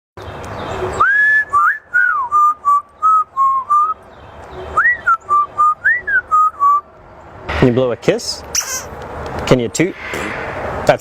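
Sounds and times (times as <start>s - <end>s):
parrot whistling a tune: 1.0s - 4.0s, 4.8s - 6.8s.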